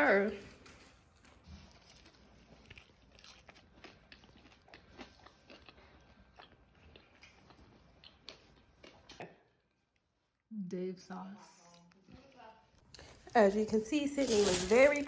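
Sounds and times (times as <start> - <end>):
crunching and chewing fried chicken: 0.4 - 10.1.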